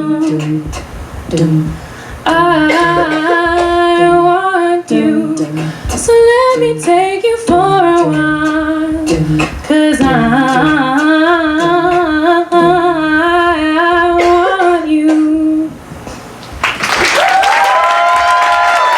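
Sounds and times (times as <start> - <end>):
women singing a cappella: 0.0 - 16.2
vocal percussion hits: 0.0 - 16.6
audience cheering and whooping: 16.6 - 18.9.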